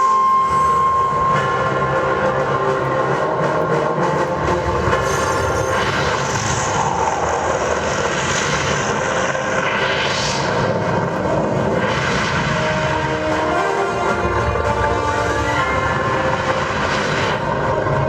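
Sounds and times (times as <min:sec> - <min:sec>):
rumbling sound effects over loudspeakers: 0:00.0 - 0:18.0
rushes of higher noise: 0:00.0 - 0:18.0.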